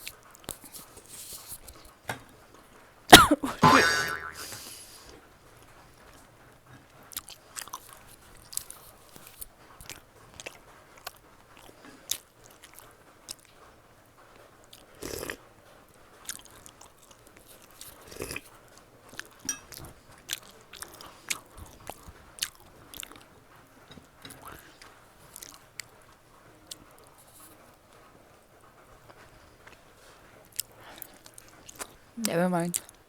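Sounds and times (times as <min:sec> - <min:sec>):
wet chewing with mouth clicks: 0:07.1 - 0:13.7, 0:14.7 - 0:15.4, 0:16.2 - 0:23.3, 0:24.3 - 0:27.6, 0:29.1 - 0:32.0.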